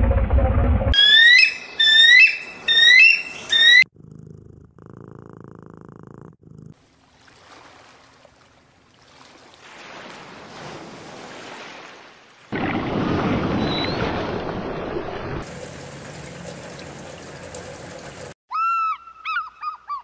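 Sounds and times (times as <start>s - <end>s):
cat purring: 3.9s - 6.8s
faint surf: 6.8s - 14.8s.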